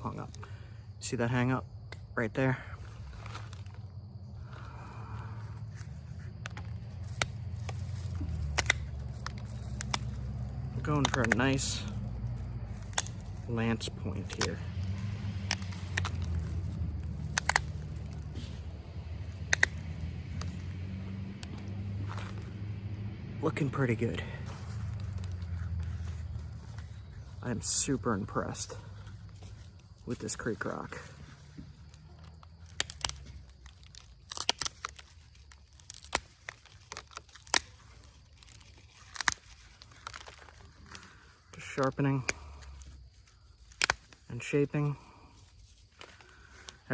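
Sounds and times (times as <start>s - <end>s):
stone flakes snapping: 6.4s - 13.4s, 14.2s - 18.5s, 31.8s - 41.2s, 43.6s - 44.3s.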